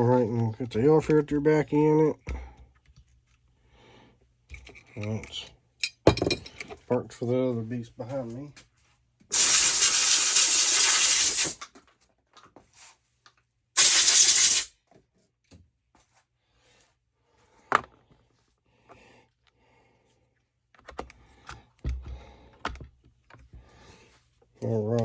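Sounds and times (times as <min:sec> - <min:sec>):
pressurised nozzle hissing blasts: 0:09.3 - 0:11.6, 0:13.8 - 0:14.7.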